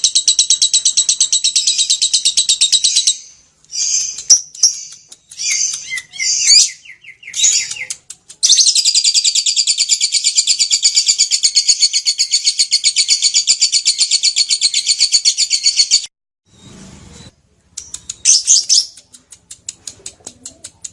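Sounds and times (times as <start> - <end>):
bird chirping: 0.0 - 20.9
bird rapid chattering trill: 3.8 - 16.0.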